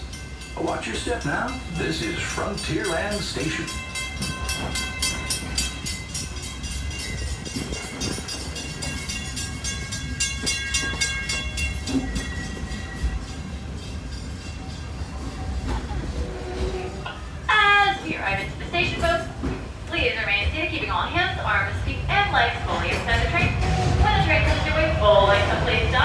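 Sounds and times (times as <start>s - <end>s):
low rumble: 21.7s - 26.0s.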